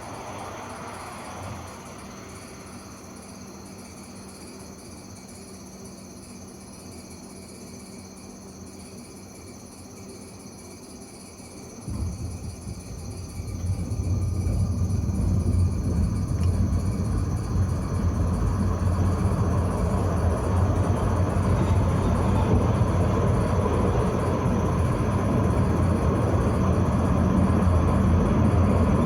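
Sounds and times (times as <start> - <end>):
tram wheels rumbling on rails: 11.8 - 29.0.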